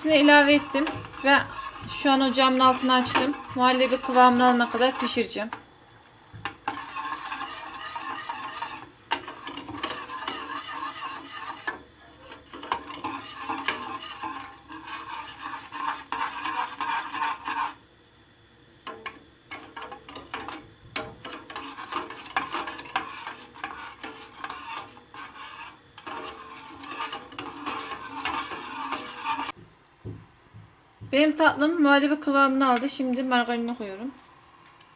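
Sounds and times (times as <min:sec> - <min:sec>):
utensil scraping pot bottom: 0:00.0 - 0:05.7, 0:06.4 - 0:17.8, 0:18.9 - 0:29.6.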